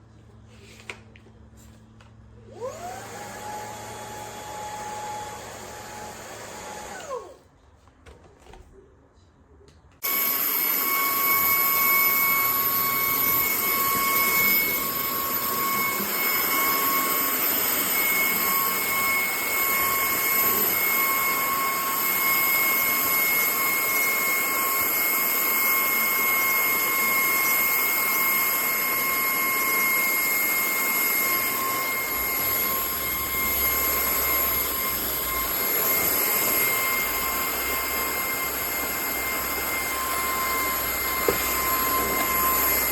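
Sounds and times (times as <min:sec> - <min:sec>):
stick vacuum running: 0:10.0 - 0:42.9.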